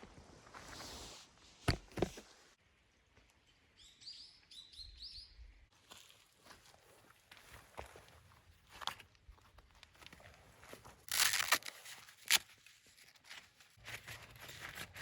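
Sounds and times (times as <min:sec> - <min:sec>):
small bird chirping: 0:03.7 - 0:05.5.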